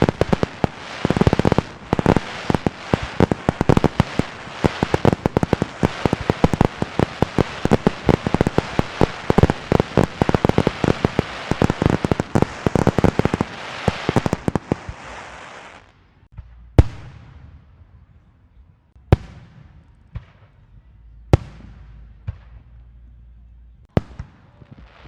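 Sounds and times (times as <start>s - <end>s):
firecracker pops: 0.0s - 17.4s.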